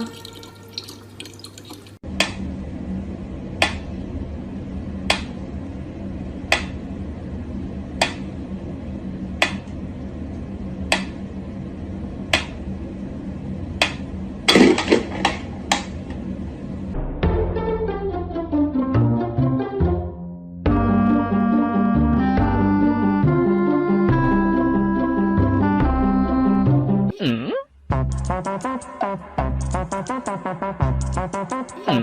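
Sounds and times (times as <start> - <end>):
steady low hum: 2.0 - 17.2.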